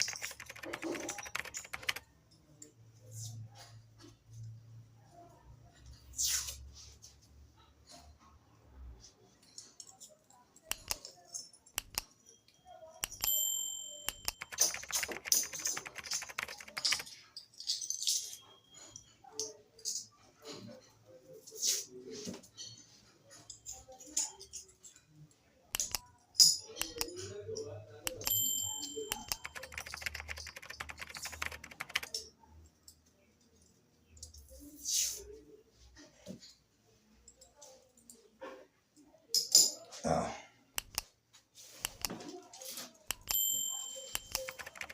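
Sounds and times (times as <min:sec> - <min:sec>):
rapid clicking and crackling: 0:00.0 - 0:02.0, 0:14.1 - 0:17.1, 0:29.1 - 0:32.1, 0:44.1 - 0:44.9
metal parts clicking: 0:11.8 - 0:12.0.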